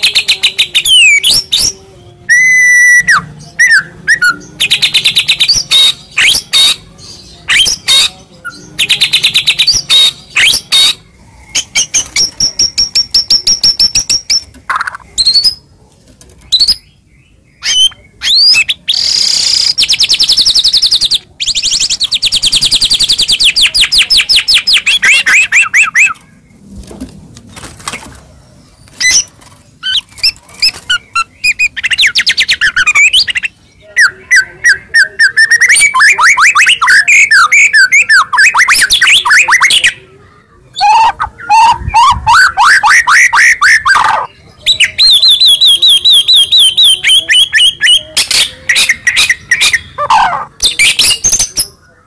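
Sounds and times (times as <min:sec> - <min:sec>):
bird singing loudly: 0:00.0 - 0:11.0, 0:17.6 - 0:26.2, 0:30.7 - 0:40.0, 0:40.7 - 0:51.6.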